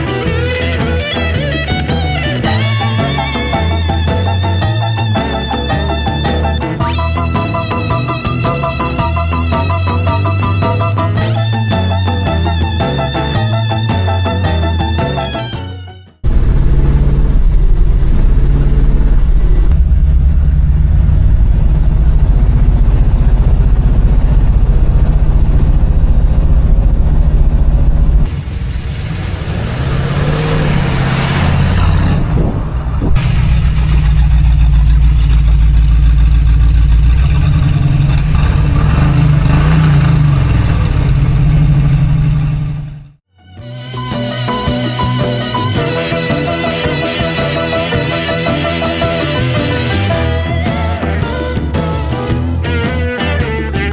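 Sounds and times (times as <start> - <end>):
car engine revving: 16.2 - 43.2.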